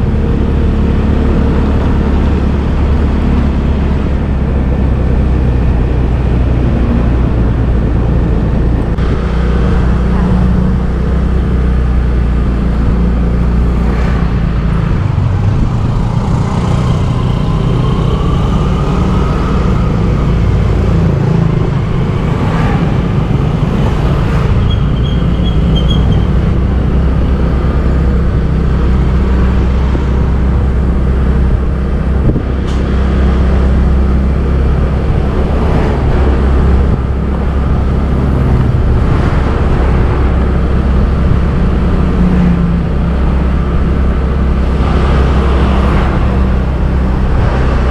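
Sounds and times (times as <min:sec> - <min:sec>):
road traffic rumble: 0:00.0 - 0:47.9
passing engine rising in pitch: 0:12.8 - 0:47.9.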